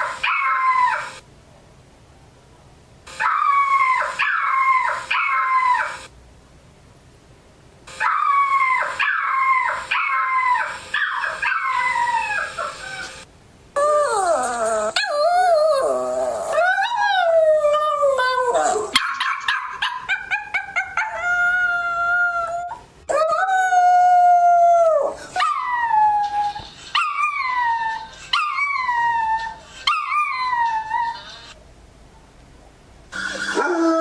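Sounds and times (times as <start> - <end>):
dog yelping: 0.0 - 1.2, 3.1 - 6.0, 7.9 - 13.2, 13.8 - 23.7, 25.0 - 31.5
dog howling: 13.8 - 19.0, 20.3 - 31.2, 33.5 - 34.0.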